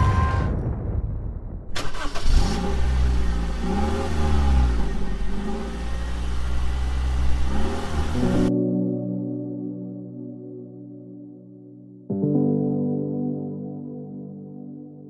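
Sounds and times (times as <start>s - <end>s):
vehicle engine revving: 1.8s - 8.5s.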